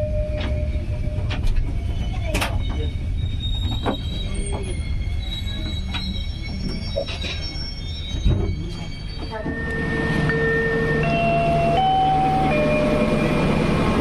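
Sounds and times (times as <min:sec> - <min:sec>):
train rumbling on rails: 0:00.0 - 0:14.0
wheel squeal: 0:00.5 - 0:10.0
held tone: 0:09.4 - 0:13.8.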